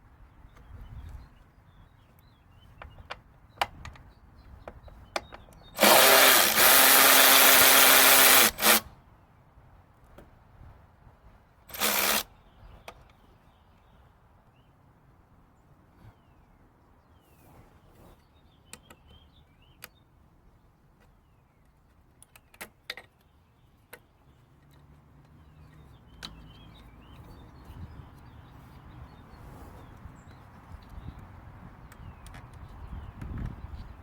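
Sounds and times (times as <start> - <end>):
power tool running: 5.8 - 8.8, 11.7 - 12.2.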